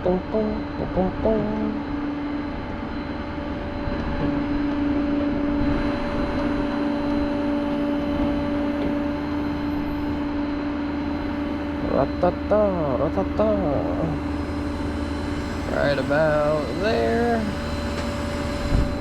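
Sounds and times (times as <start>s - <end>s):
low hum: 0.0s - 19.0s
vehicle engine idling: 11.9s - 19.0s.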